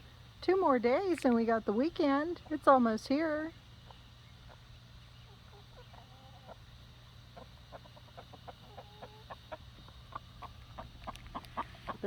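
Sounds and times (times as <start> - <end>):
hens clucking softly: 3.8 - 12.0.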